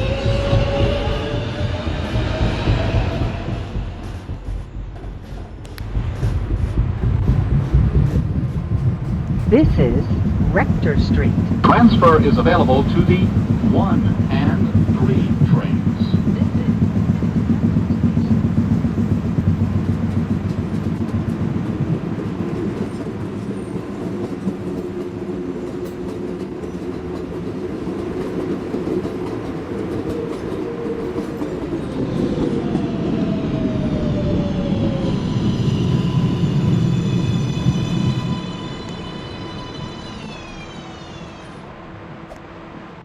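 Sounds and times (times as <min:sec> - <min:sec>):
subway train rumble: 0:00.0 - 0:43.0.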